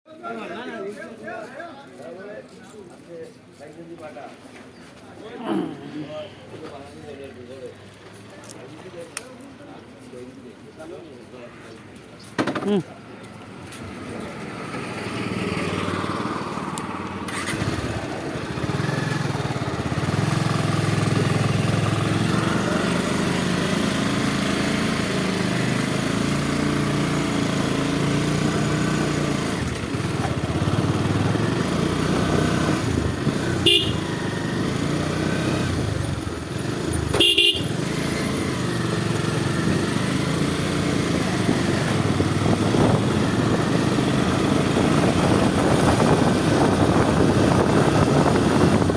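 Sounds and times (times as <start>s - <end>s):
motorcycle engine running: 14.6s - 48.9s
horn honks: 33.5s - 34.5s, 37.1s - 38.1s.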